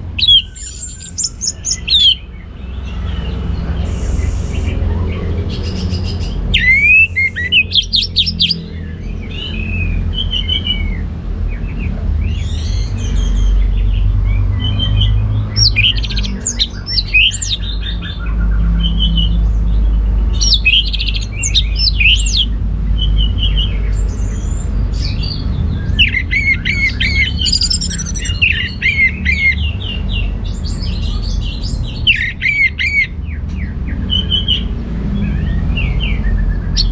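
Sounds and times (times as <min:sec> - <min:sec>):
thrush whistled song: 0:06.5 - 0:08.1.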